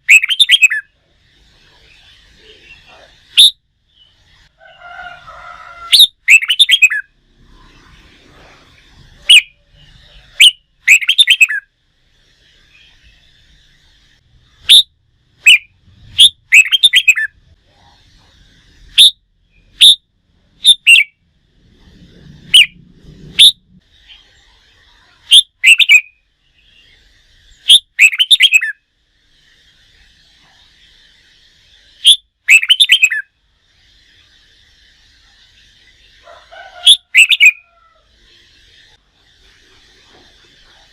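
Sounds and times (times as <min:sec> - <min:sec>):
bird whistled song: 0:00.0 - 0:00.9, 0:01.8 - 0:04.2, 0:05.9 - 0:07.1, 0:09.2 - 0:11.7, 0:14.6 - 0:17.4, 0:18.9 - 0:20.0, 0:20.6 - 0:21.2, 0:22.4 - 0:22.8, 0:23.4 - 0:24.4, 0:25.3 - 0:28.8, 0:31.7 - 0:33.3, 0:36.8 - 0:37.7
faint bird chattering: 0:00.0 - 0:07.2, 0:08.4 - 0:11.7, 0:12.4 - 0:20.0, 0:20.6 - 0:21.2, 0:22.3 - 0:40.9.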